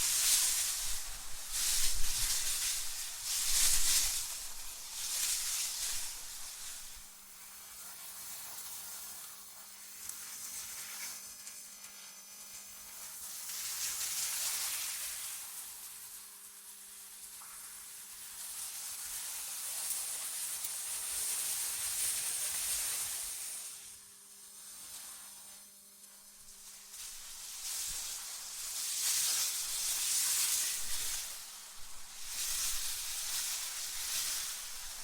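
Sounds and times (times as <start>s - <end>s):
gusting wind hiss: 0.0s - 7.2s, 26.2s - 35.0s.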